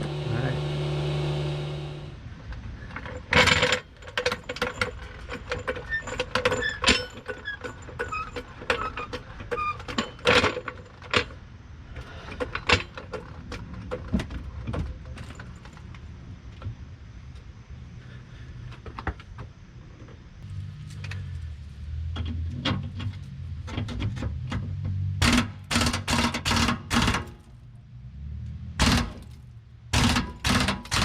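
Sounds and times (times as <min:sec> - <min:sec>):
motorised tool humming: 0:00.0 - 0:02.2
metal tools clinking: 0:02.9 - 0:11.0.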